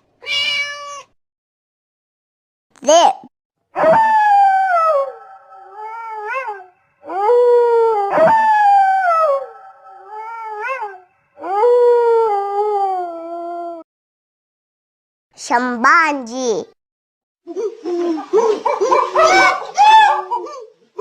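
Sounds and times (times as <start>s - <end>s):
wolves howling: 3.8s - 12.3s, 19.0s - 20.6s.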